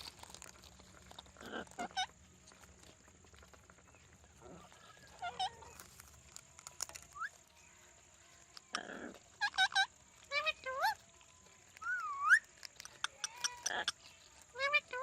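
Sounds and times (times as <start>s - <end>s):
parrots calling: 1.3s - 2.2s, 4.4s - 5.9s, 8.6s - 11.0s, 11.8s - 15.0s
parrot harsh squawk: 1.4s - 2.1s, 8.7s - 11.0s, 13.1s - 15.0s
parrot rising whistle: 11.8s - 12.4s.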